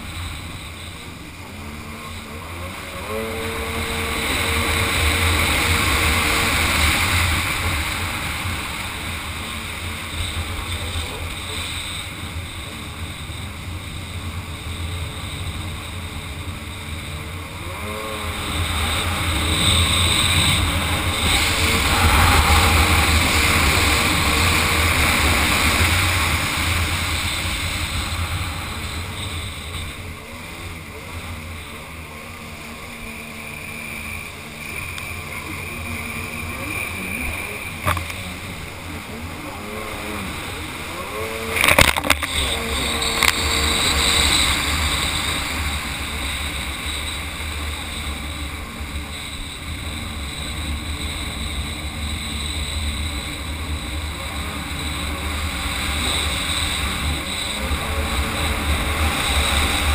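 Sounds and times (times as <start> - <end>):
jet ski engine running hard: 0.0 - 59.9
wind on microphone: 0.0 - 59.9
rushing water spray: 17.7 - 48.6.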